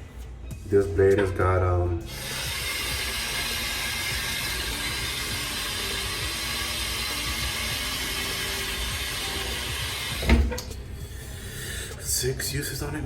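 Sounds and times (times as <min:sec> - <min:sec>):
faucet running water: 0:02.1 - 0:10.7.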